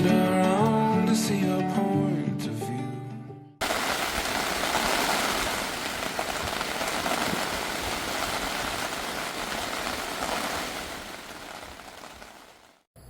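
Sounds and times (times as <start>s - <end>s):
rain falling: 3.6s - 12.8s.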